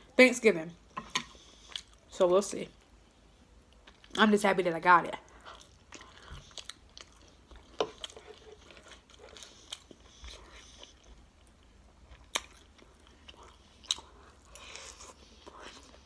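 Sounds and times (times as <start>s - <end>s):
chewing food with mouth clicks: 5.3s - 16.0s.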